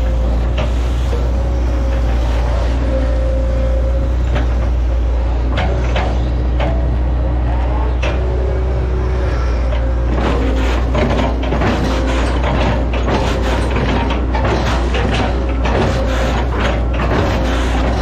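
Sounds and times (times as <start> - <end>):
excavator diesel engine running: 0.0 - 18.0
hydraulic whine: 0.0 - 18.0
sharp knocks and cracks: 10.2 - 18.0.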